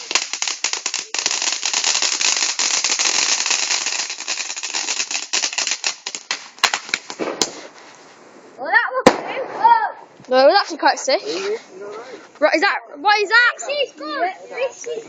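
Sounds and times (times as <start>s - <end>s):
sharp fireworks cracks: 0.0s - 10.8s
fireworks crackling: 0.0s - 11.7s, 12.4s - 15.0s.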